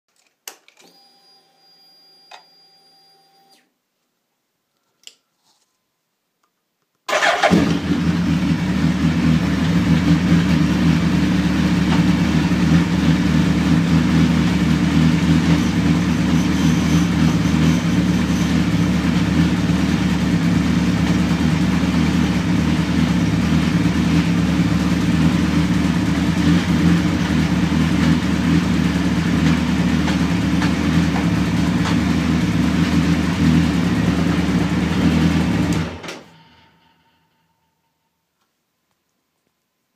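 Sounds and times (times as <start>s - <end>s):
click: 4.8s - 5.2s
motorcycle engine starting and idling: 7.1s - 37.1s.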